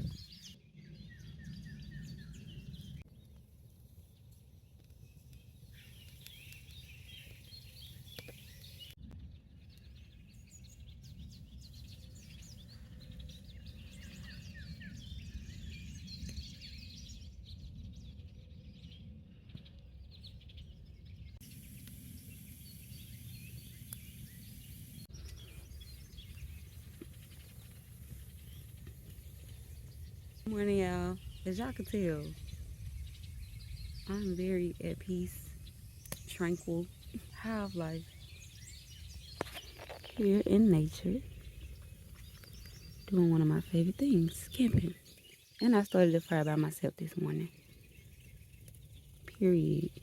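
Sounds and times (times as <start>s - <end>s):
small birds chirping: 0.0s - 50.0s
low background rumble: 9.3s - 39.4s.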